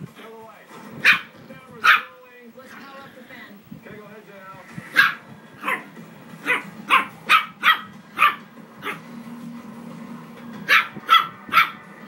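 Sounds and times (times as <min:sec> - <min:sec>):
puppy yapping: 0:01.0 - 0:02.1, 0:04.9 - 0:09.0, 0:10.7 - 0:11.9.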